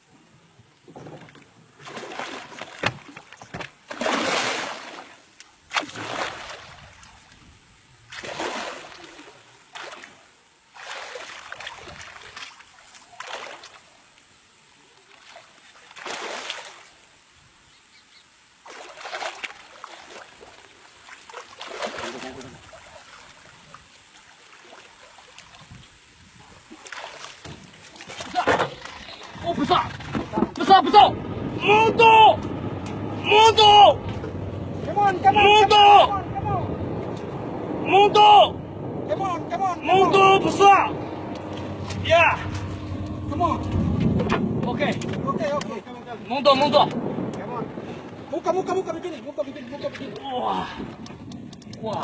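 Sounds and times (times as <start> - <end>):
water splashing: 1.2 - 17.2, 18.5 - 52.0.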